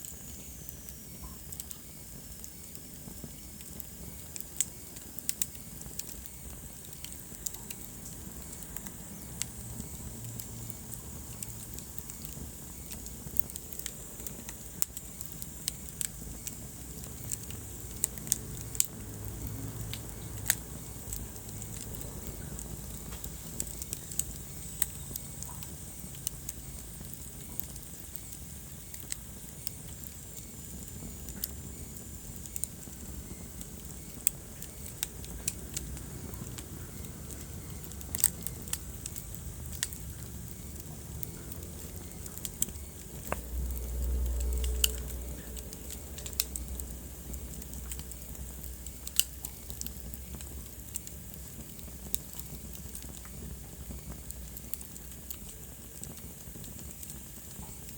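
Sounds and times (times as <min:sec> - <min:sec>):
fire crackling and popping: 0:00.0 - 0:57.9
low fire rumble: 0:00.0 - 0:57.9.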